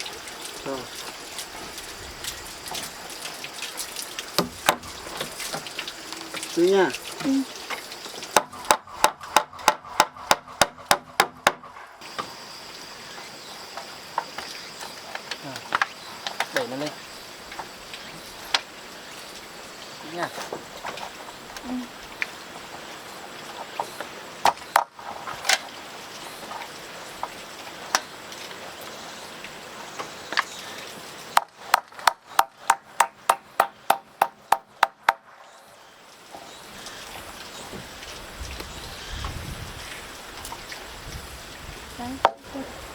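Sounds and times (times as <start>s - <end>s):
hammer striking wood: 4.4s - 4.9s, 8.4s - 11.7s, 31.4s - 35.2s.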